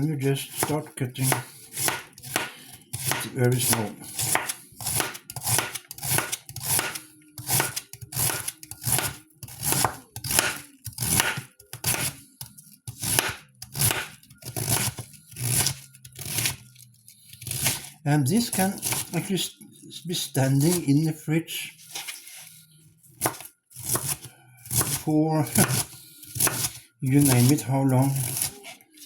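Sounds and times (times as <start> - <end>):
knife slicing through cabbage: 0.5 - 19.2, 21.8 - 22.6, 23.2 - 29.0.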